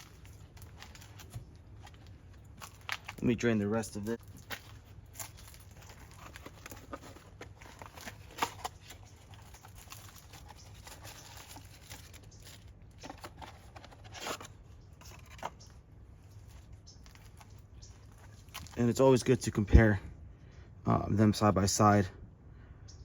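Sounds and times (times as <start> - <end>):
rustling: 0.0 - 3.4, 4.0 - 19.0.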